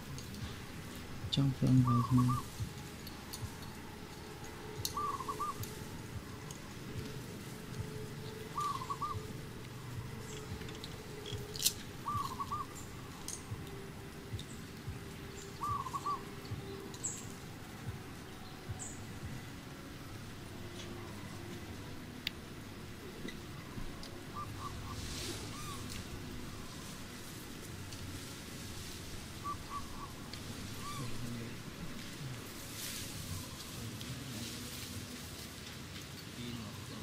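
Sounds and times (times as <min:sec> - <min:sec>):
bird call of quick notes: 0:01.6 - 0:02.6, 0:04.6 - 0:05.8, 0:07.9 - 0:09.4, 0:10.0 - 0:13.5, 0:15.3 - 0:17.4, 0:23.6 - 0:27.0, 0:29.3 - 0:31.5.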